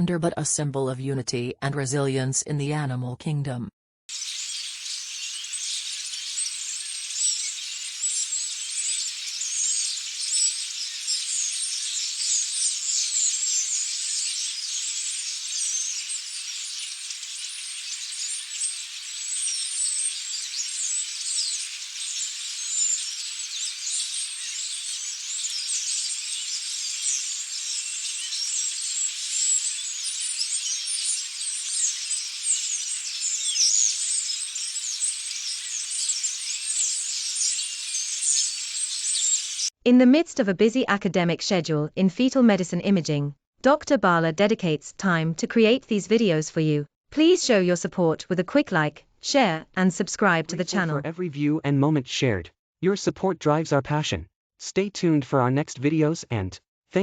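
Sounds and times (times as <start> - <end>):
flock of starlings chattering: 4.1 - 39.7.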